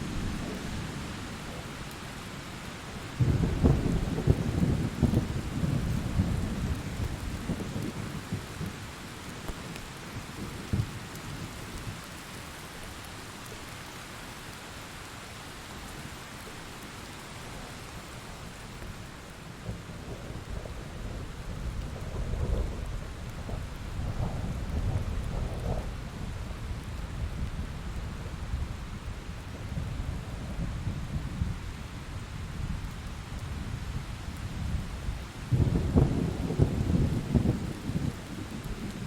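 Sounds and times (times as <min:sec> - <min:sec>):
heavy rain falling: 0:00.0 - 0:39.0
thunder rumbling: 0:03.2 - 0:08.8, 0:19.6 - 0:31.6, 0:34.4 - 0:39.0.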